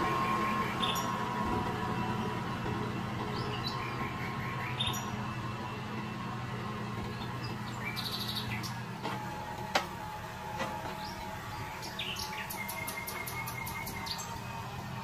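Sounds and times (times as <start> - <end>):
tractor engine humming: 0.0 - 15.0
small birds chirping: 0.4 - 1.2, 2.8 - 5.2, 7.0 - 8.8, 10.9 - 14.4.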